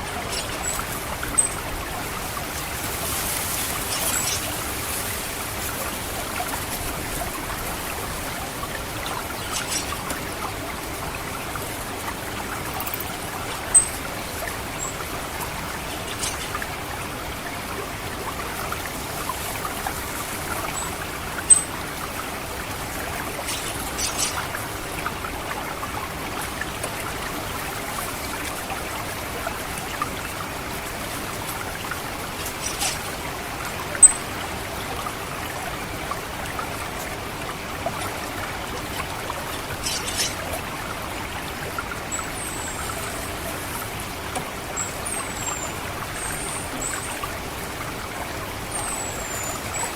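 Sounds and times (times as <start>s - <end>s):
water trickling and gurgling: 0.0s - 49.9s
thrush high-pitched calls: 23.5s - 24.5s.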